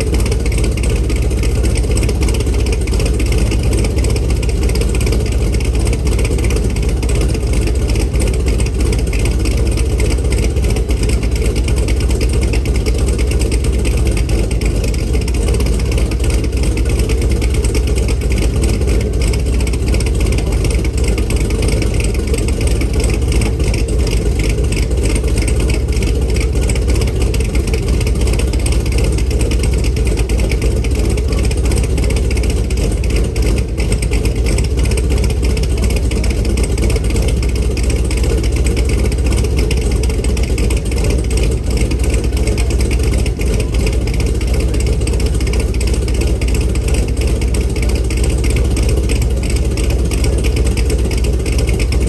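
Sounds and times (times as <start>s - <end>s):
car engine running: 0.0s - 52.0s.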